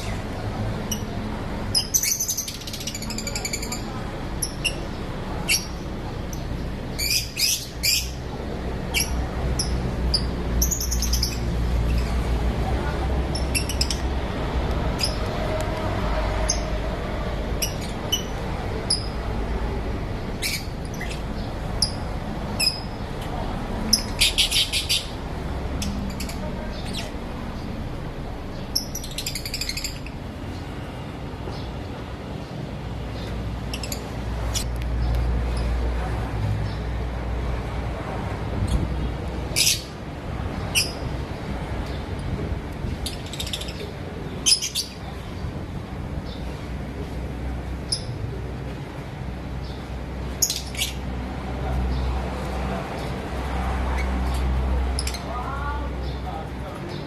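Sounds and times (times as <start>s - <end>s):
lovebirds chirping: 0.0s - 35.8s, 42.9s - 46.6s, 49.5s - 51.2s.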